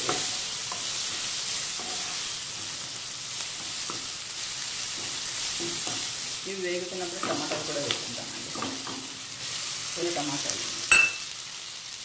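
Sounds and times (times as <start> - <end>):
wooden spatula scraping pan: 0.0 - 2.4
onions sizzling in oil: 0.0 - 12.0.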